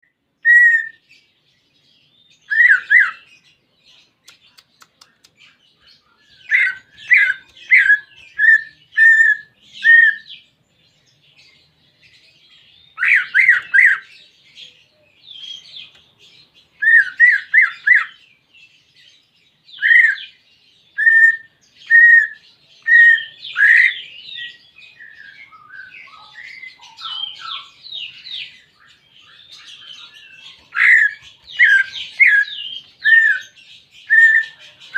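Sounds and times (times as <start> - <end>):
bird singing repeated notes: 0.0 - 11.3, 12.0 - 34.9
bird twittering: 0.4 - 1.0, 2.3 - 3.4, 4.2 - 10.4, 12.6 - 14.1, 16.7 - 18.3, 19.7 - 34.9.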